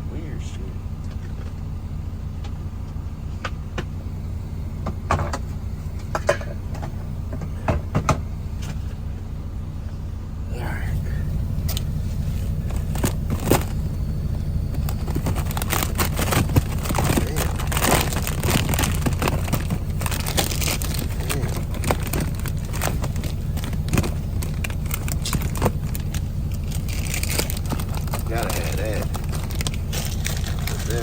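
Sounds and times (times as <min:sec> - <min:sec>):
truck engine humming: 0:00.0 - 0:31.0
snack packaging crinkling: 0:12.6 - 0:13.9, 0:14.6 - 0:31.0.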